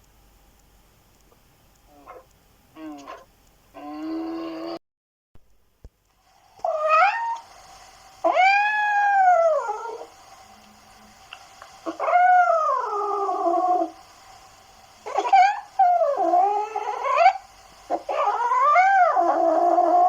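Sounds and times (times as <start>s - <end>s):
cat meowing: 8.3s - 10.1s.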